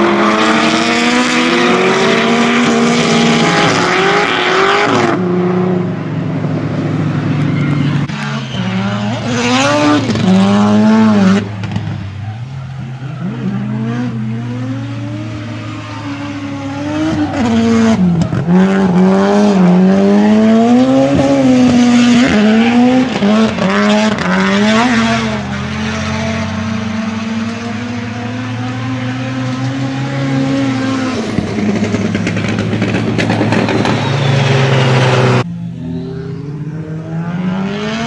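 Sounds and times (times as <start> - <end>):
car engine at high revs: 0.0 - 38.0
tyre squeal: 7.3 - 10.4, 15.0 - 19.3, 33.2 - 36.7.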